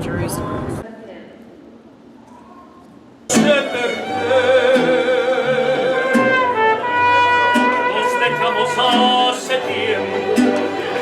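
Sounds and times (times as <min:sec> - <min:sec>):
mariachi band playing: 0:03.3 - 0:11.0.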